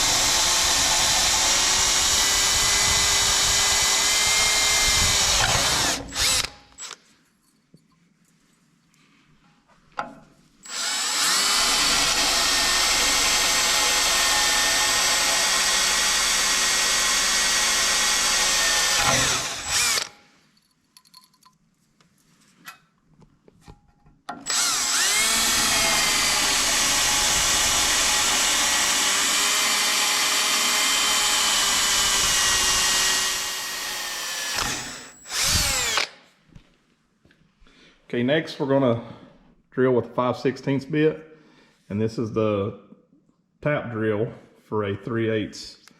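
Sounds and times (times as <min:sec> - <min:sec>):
electric drill drilling into metal: 0:00.0 - 0:07.0, 0:10.6 - 0:20.2, 0:24.4 - 0:36.2.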